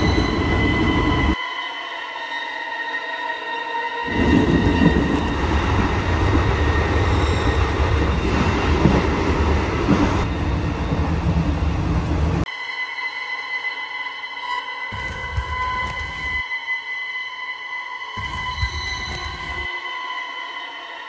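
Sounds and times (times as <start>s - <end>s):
train carriage rumbling and rattling: 0.0s - 1.4s, 4.1s - 12.5s, 15.0s - 16.4s, 18.2s - 19.7s
sustained music tones: 0.0s - 11.7s, 12.4s - 21.0s.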